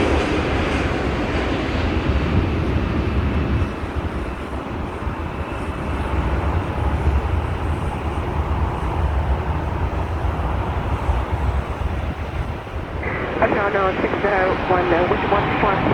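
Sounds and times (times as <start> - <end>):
jet engines rumbling: 0.0 - 15.9
faint whine: 12.8 - 15.9.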